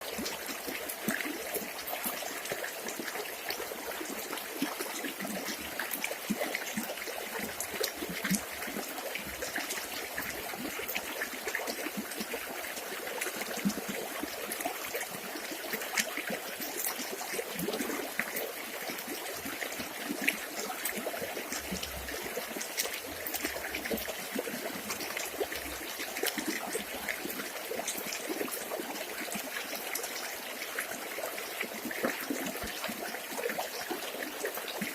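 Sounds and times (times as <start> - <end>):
river water trickling and babbling: 0.0 - 34.9.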